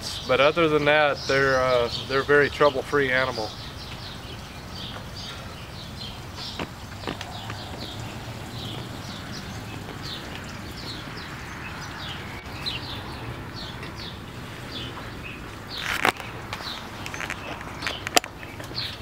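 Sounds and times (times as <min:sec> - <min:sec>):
small birds chirping: 0:00.0 - 0:19.0
steady low hum: 0:03.5 - 0:16.5.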